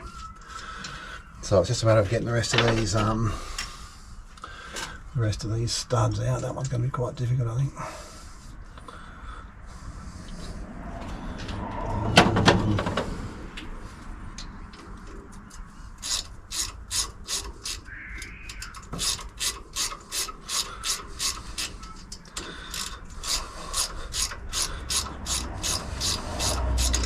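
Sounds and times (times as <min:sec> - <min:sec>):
ratchet wrench clicking: 0:15.5 - 0:17.9, 0:18.5 - 0:27.0.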